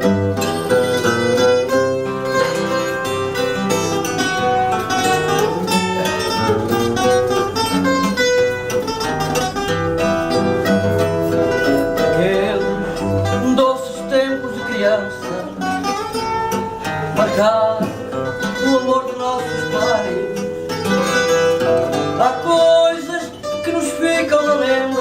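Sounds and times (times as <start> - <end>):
plucked guitar melody: 0.0 - 25.0
strummed guitar chords: 0.0 - 25.0.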